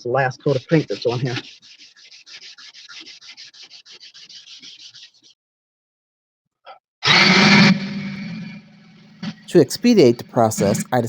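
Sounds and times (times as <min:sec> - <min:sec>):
sanding block scraping: 0:00.0 - 0:05.3.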